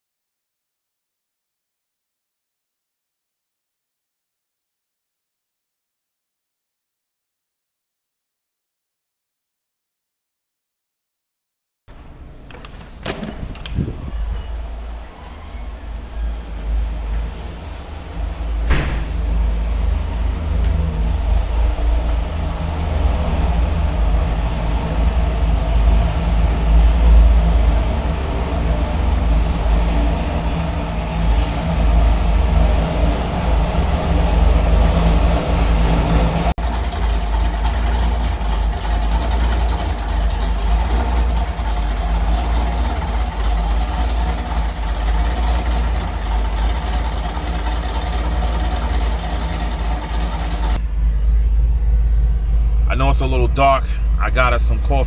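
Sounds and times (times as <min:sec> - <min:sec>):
car engine and exhaust droning: 0:11.9 - 0:55.0.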